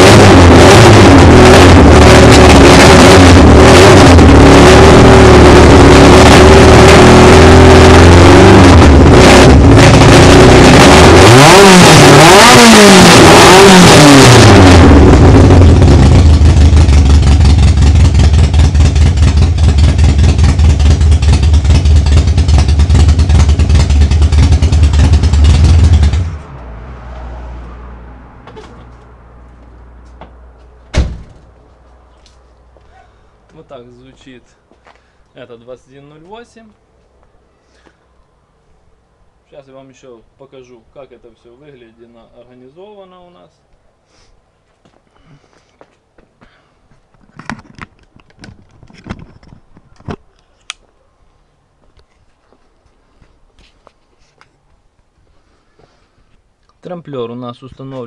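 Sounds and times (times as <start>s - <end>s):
car engine revving and idling: 0.0s - 30.6s.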